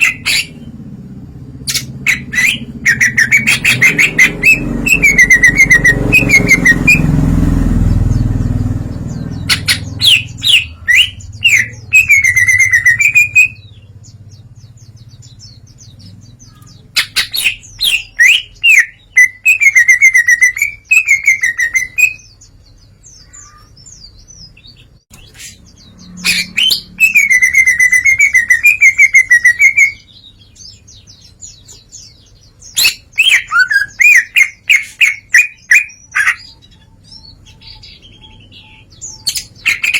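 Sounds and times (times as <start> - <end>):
bird singing chirps and whistles: 0.0 - 0.8, 1.6 - 39.9
low rumble: 0.0 - 16.8.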